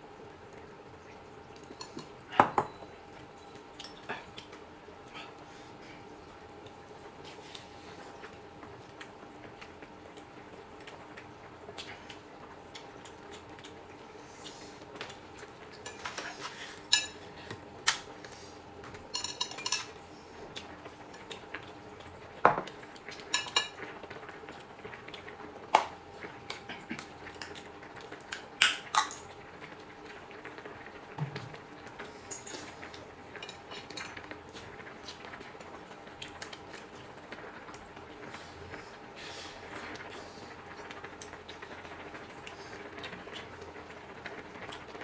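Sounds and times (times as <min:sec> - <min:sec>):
faint steady hum: 0:00.0 - 0:45.0
utensils clinking on plates: 0:16.9 - 0:17.2, 0:19.1 - 0:20.0, 0:23.2 - 0:23.8, 0:32.3 - 0:32.7.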